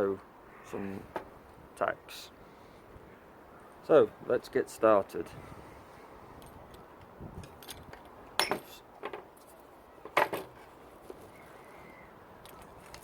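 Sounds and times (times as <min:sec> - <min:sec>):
tools clinking and knocking: 0:07.4 - 0:09.3.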